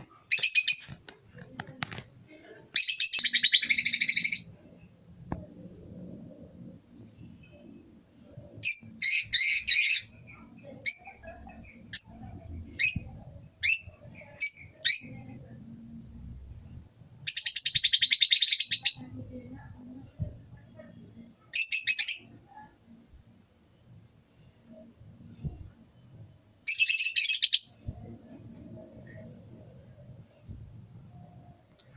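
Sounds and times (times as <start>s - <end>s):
lovebirds chirping: 0.0s - 1.1s.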